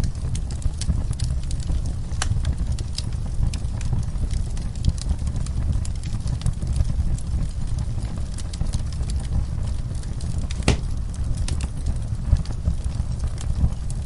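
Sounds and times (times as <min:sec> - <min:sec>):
wood fire crackling: 0:00.0 - 0:14.0
loud pop of fire: 0:10.3 - 0:11.7.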